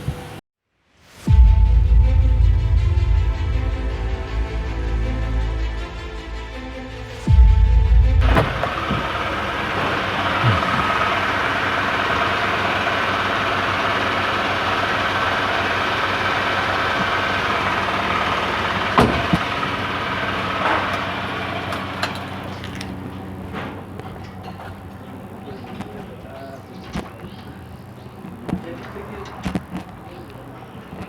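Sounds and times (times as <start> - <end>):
pickup truck engine running: 7.9 - 31.0.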